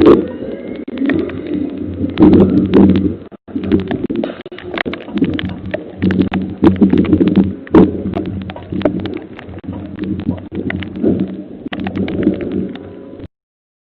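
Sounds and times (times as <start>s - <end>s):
sharp cracks and knocks: 0.8s - 12.9s.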